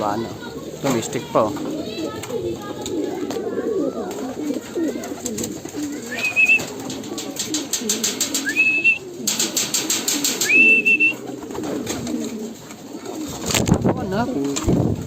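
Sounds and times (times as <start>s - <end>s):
pigeons cooing: 0.0s - 15.0s
wings flapping: 0.0s - 15.0s
short whistled notes: 6.1s - 6.7s, 8.4s - 9.1s, 10.4s - 11.2s.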